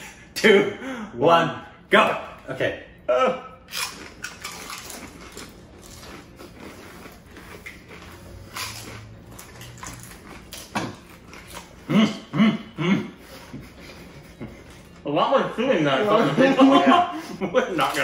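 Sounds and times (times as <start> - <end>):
people chewing and crunching: 3.4 - 15.1, 16.0 - 18.0
muffled laughs: 16.0 - 17.7.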